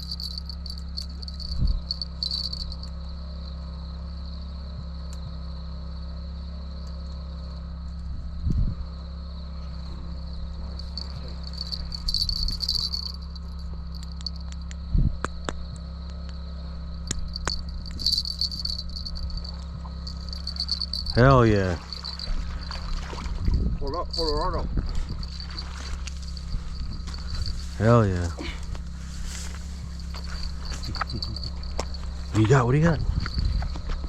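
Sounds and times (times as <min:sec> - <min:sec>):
crickets chirping: 0:00.0 - 0:34.0
steady low hum: 0:00.0 - 0:34.0.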